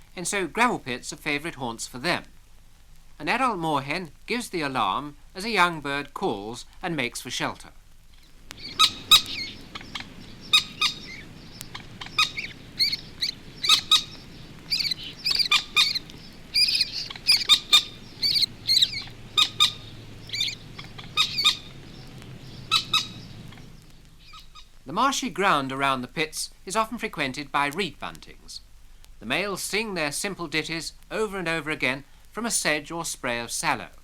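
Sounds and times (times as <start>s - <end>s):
moorhen alarm calls: 8.2s - 24.8s
young moorhen calling: 8.2s - 24.8s.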